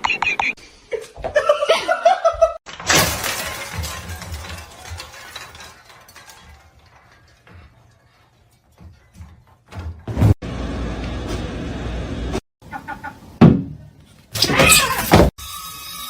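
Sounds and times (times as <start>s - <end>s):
loud crash with clattering: 2.7s - 7.9s.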